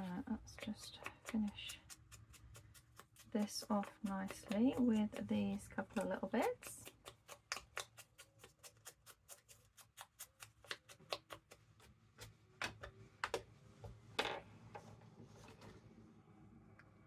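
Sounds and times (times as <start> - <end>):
clicks and taps: 12.2 - 13.5.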